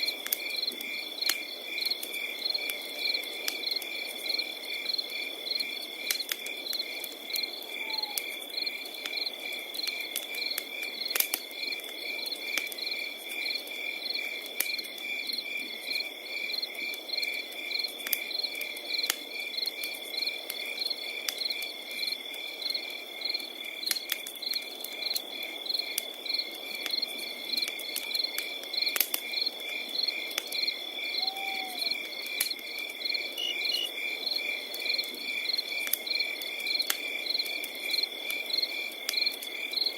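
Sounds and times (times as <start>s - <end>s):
cricket chirping: 0.0s - 39.9s
wood fire crackling: 0.0s - 39.9s
cricket steady high trill: 33.1s - 34.1s.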